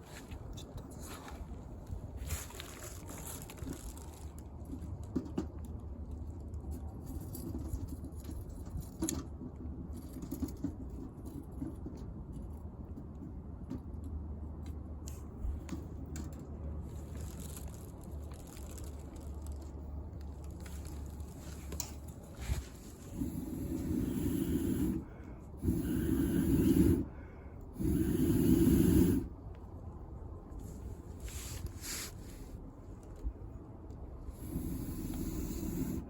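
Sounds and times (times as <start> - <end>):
low steady rumble: 0.0 - 36.0.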